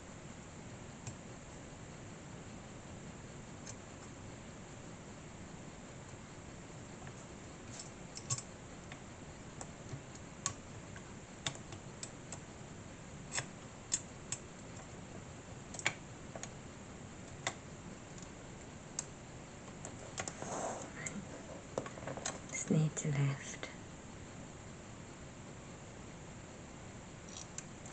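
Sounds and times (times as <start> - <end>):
low hiss: 0.0 - 27.9
small parts clicking and tapping: 7.0 - 9.0, 13.3 - 14.9, 15.7 - 16.6, 27.3 - 27.9.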